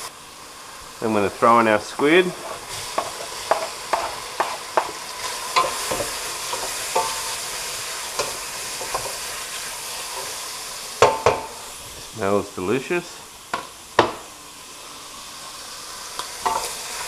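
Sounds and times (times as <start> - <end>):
squid sizzling in oil: 0.0 - 17.0
spoon knocking in a pot: 3.0 - 4.9, 11.0 - 11.6.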